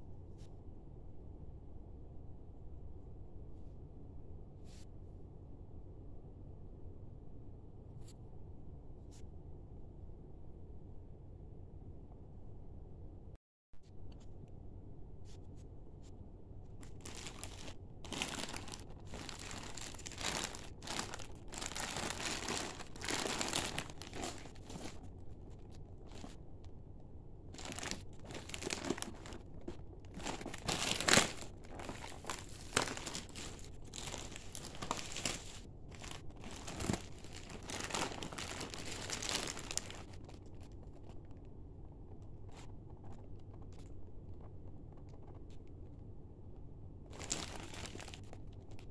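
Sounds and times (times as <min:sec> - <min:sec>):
plastic wrapping crinkling: 0:16.8 - 0:26.4, 0:27.6 - 0:41.2, 0:47.1 - 0:48.9.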